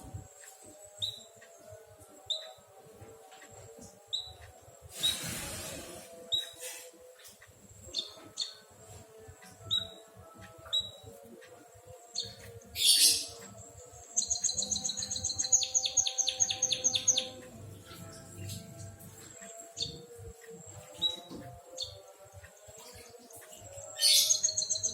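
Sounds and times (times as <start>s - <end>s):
bird chirping: 12.0s - 20.2s, 22.7s - 24.9s.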